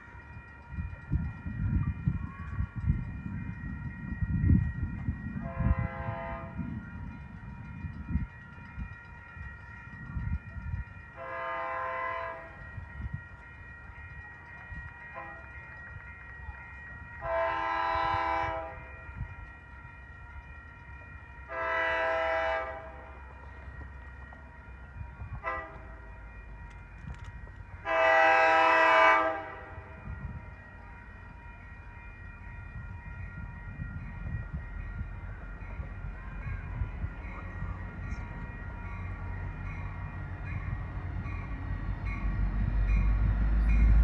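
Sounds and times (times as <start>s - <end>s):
low rumble of train: 0.0s - 44.0s
train horn blasts: 5.4s - 6.7s, 11.2s - 12.6s, 15.1s - 15.5s, 17.2s - 19.0s, 21.5s - 23.2s, 25.4s - 26.0s, 27.8s - 29.9s.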